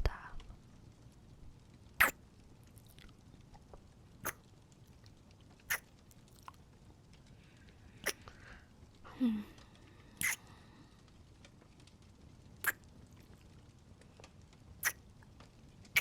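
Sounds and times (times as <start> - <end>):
wet lip smacks kissing: 5.7 - 6.6, 8.0 - 8.2, 10.2 - 10.5, 12.6 - 12.8
person humming: 9.1 - 9.6.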